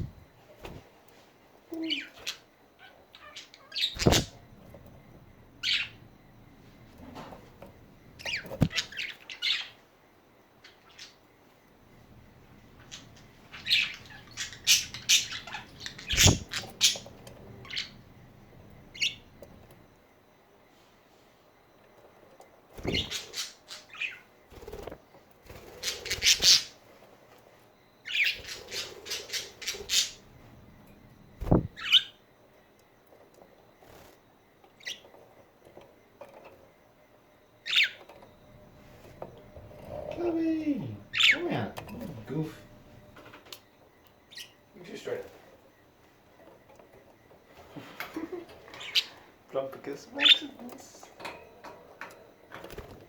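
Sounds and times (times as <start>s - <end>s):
budgerigars chirping and squawking: 3.1s - 4.4s, 5.6s - 6.0s, 8.2s - 9.8s, 12.8s - 18.0s, 18.9s - 19.2s, 22.8s - 24.3s, 25.6s - 26.8s, 28.0s - 30.3s, 31.5s - 32.2s, 37.6s - 38.0s, 41.1s - 41.9s, 48.8s - 49.2s, 50.1s - 50.6s.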